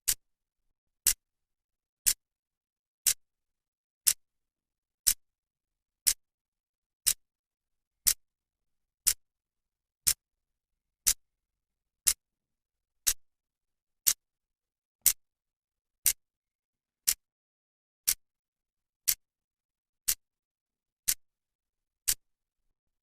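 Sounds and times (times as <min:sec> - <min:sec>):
clock ticking: 0:06.0 - 0:06.2, 0:14.0 - 0:14.2, 0:16.0 - 0:16.2, 0:17.0 - 0:17.2, 0:20.0 - 0:20.2, 0:21.0 - 0:21.2.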